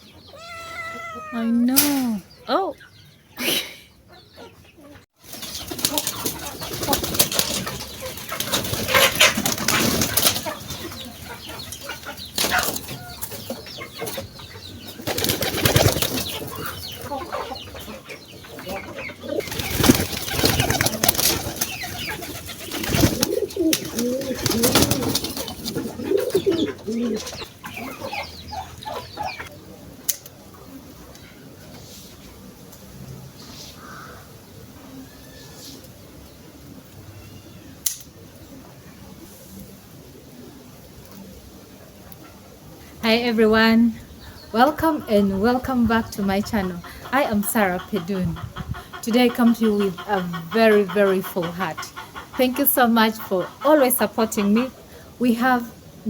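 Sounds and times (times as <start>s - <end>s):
low wavering bird calls: 0.0s - 3.3s
birds flapping wings: 5.2s - 10.8s, 15.0s - 16.6s, 19.4s - 26.4s.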